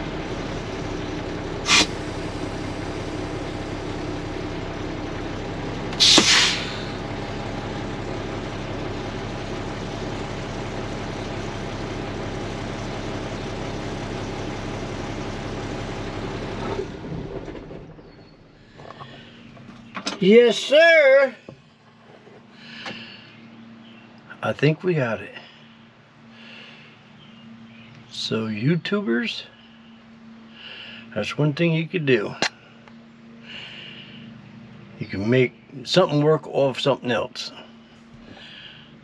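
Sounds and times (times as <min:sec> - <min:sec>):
diesel engine idling: 0:00.0 - 0:39.0
air compressor building air: 0:01.6 - 0:11.6
air release hisses: 0:01.7 - 0:02.2, 0:06.0 - 0:07.0.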